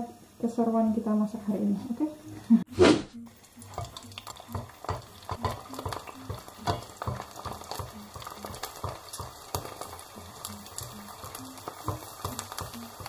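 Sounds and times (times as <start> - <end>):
crackers frying in hot oil: 0.0 - 2.6, 3.2 - 13.0.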